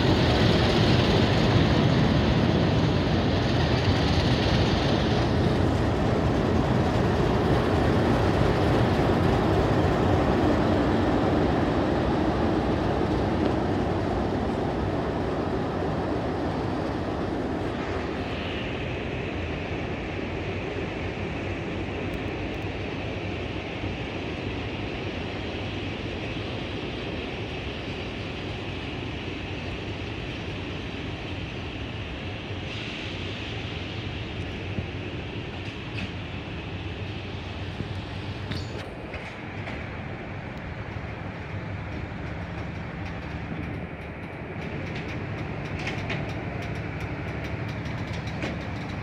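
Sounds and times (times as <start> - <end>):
diesel locomotive engines: 0.0 - 49.0
carriages rolling past: 37.4 - 49.0.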